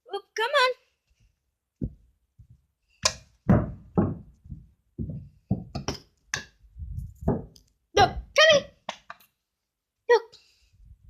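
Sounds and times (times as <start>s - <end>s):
irregular knocks and thumps: 1.8s - 9.2s.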